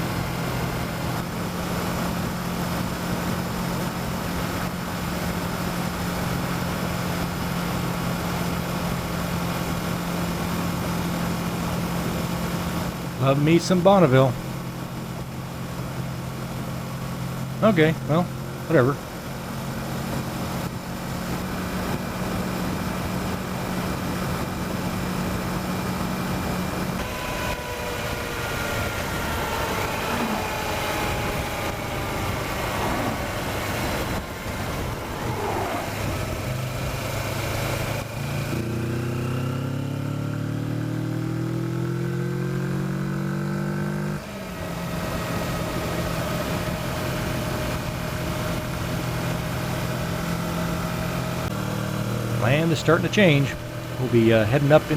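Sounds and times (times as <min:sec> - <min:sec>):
motorcycle engine: 0:00.0 - 0:54.9
wind noise: 0:28.6 - 0:37.2.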